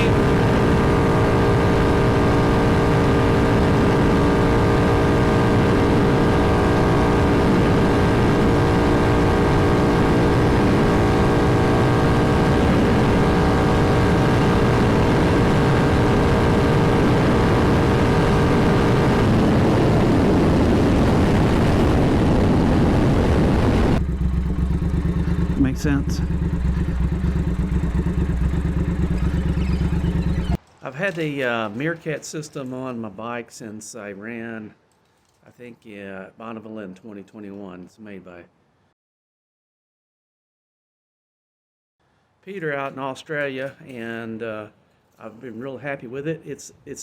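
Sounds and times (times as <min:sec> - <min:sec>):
motorcycle engine at high revs: 0:00.0 - 0:30.6.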